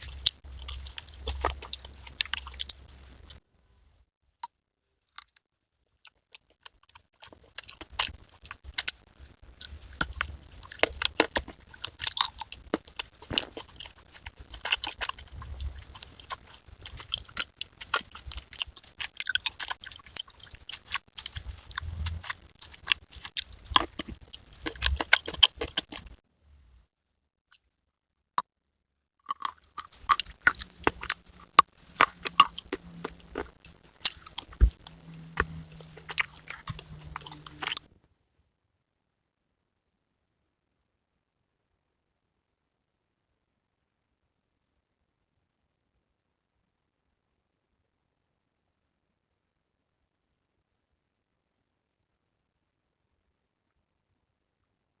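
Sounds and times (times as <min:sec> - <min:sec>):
dry clay being chewed crunchily: 0:00.0 - 0:03.4, 0:04.3 - 0:26.2, 0:27.5 - 0:27.8, 0:29.2 - 0:37.9.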